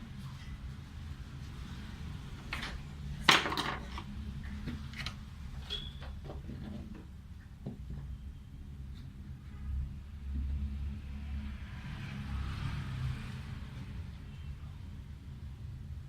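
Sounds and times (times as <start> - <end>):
tools clicking and knocking: 2.5 - 4.1
tools clattering: 3.3 - 4.1.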